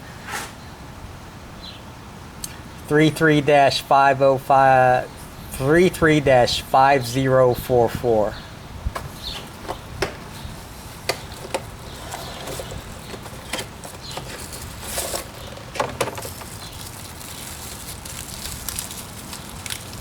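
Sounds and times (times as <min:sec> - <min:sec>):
air filter being unwrapped: 0:10.3 - 0:20.0.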